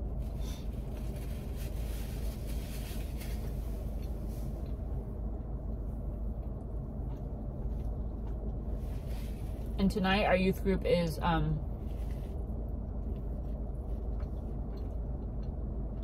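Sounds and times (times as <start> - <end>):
car engine idling: 0.0 - 16.0
faint chewing: 3.1 - 9.8, 11.8 - 16.0.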